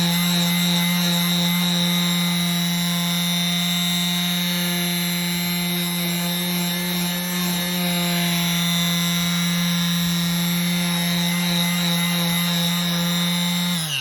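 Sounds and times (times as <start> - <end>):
orbital sander sanding wood: 0.0 - 14.0.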